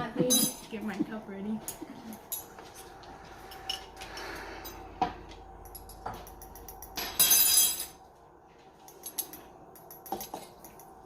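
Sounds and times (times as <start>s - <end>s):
glass and utensil clinks: 0.2s - 0.7s, 5.7s - 8.0s, 8.9s - 11.0s.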